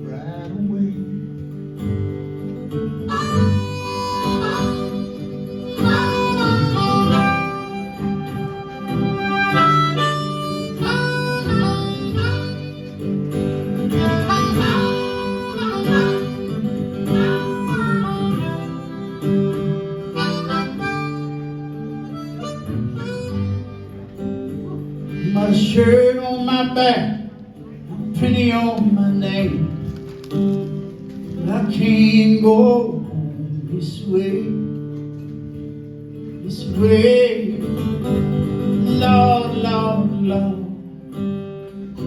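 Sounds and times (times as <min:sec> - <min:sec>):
acoustic guitar: 0:00.0 - 0:42.0
harmonica solo: 0:02.7 - 0:26.2.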